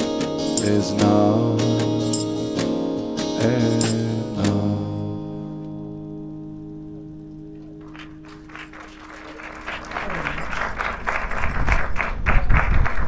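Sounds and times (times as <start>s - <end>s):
acoustic guitar chord ringing: 0.0s - 8.6s
audience applause: 7.6s - 13.0s.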